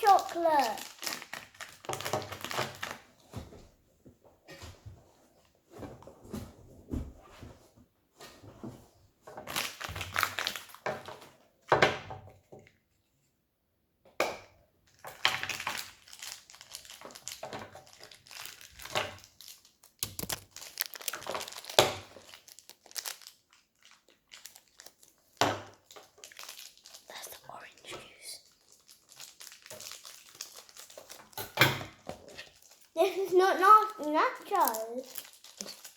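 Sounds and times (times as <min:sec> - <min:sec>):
plastic packaging crinkling: 0:00.0 - 0:03.2, 0:09.4 - 0:11.2, 0:15.0 - 0:35.9.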